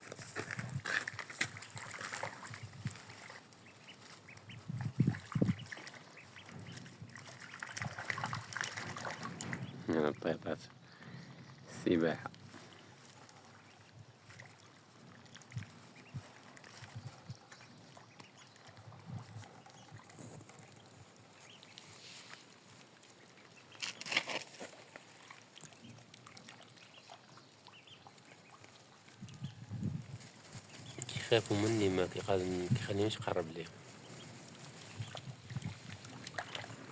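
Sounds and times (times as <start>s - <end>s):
ducks quacking: 1.6s - 13.9s.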